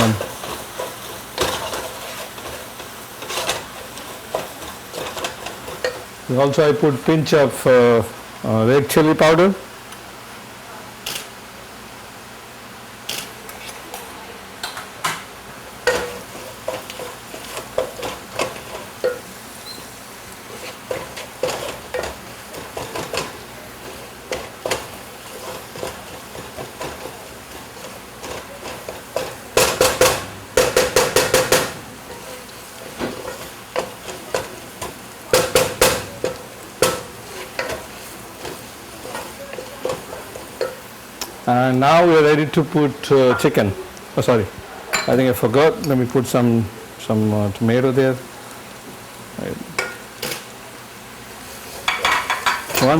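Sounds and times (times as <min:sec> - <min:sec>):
faint sizzle: 0:00.0 - 0:52.9.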